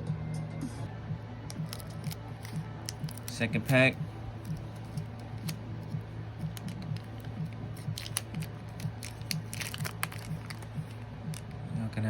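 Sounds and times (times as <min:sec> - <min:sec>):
faint background music with beat: 0:00.0 - 0:12.0
foil wrapper crinkling: 0:01.5 - 0:05.6, 0:06.4 - 0:11.4.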